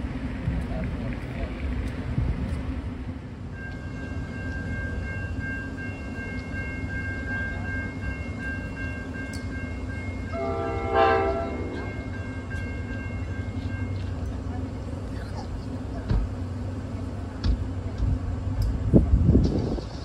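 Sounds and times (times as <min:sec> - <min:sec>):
train rumbling past: 0:00.0 - 0:20.0
train horn blast: 0:10.3 - 0:12.1.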